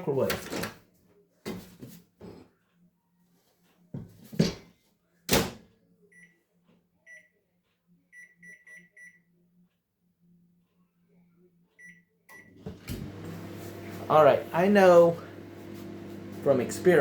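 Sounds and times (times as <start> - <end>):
microwave keypad beeps: 8.1 - 9.2, 11.8 - 12.6.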